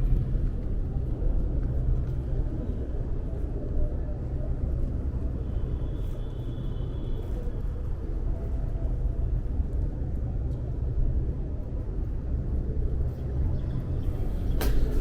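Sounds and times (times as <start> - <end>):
low outdoor rumble: 11.2 - 15.0.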